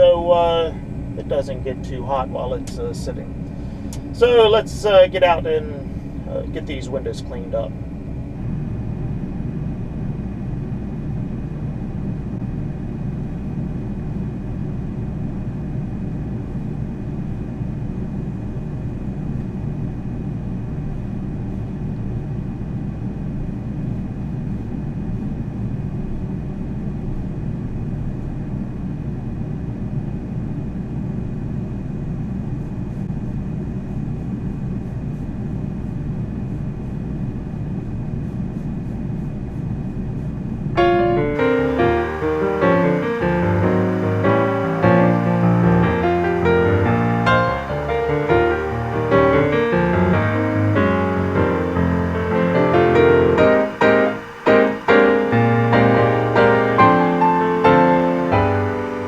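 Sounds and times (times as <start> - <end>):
faint high whine: 0.0 - 18.2, 38.2 - 59.0
combine harvester engine rumble: 0.0 - 18.9, 38.4 - 59.0.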